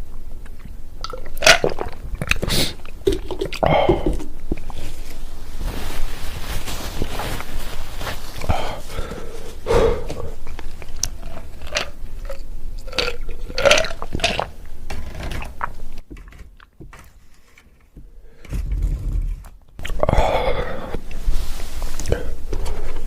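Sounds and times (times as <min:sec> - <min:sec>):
wet mouth clicks: 0:00.4 - 0:04.7
chewing and crunching peanuts: 0:10.0 - 0:14.6.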